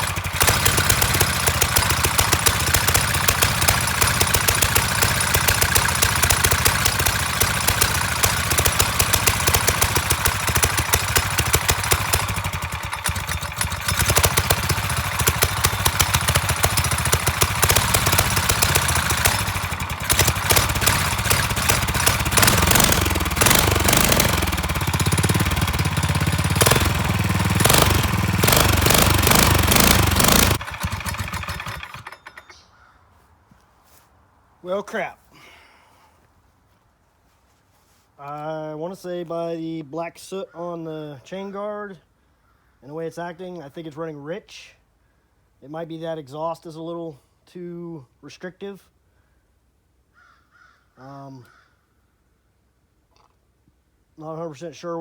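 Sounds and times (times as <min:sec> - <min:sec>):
dirt bike engine running unevenly: 0:00.0 - 0:32.5.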